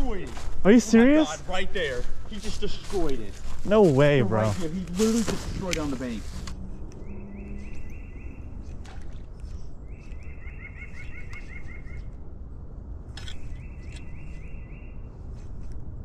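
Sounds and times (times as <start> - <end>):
steady low rush: 0.0 - 16.0
small bird whistling: 7.0 - 8.6, 9.9 - 12.1.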